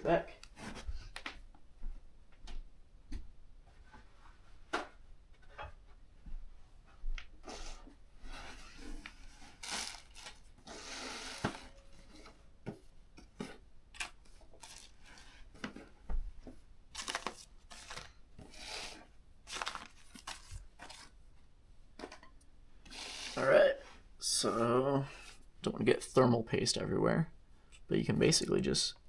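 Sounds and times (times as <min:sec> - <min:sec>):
rustling and scraping: 0:00.4 - 0:02.0, 0:03.6 - 0:22.2.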